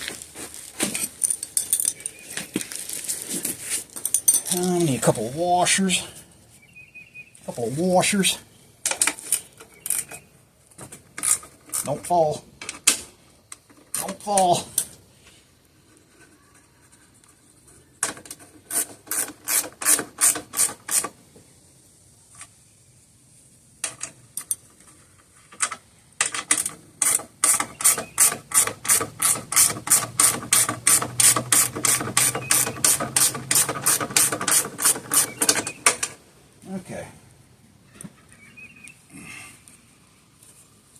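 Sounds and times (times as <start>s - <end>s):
ratchet wrench clicking: 26.6s - 35.6s.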